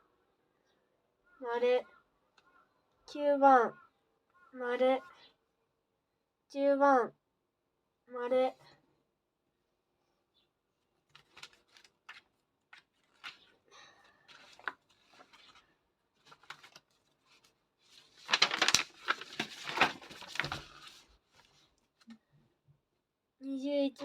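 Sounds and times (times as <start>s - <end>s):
paper rustling: 11.1s - 22.1s.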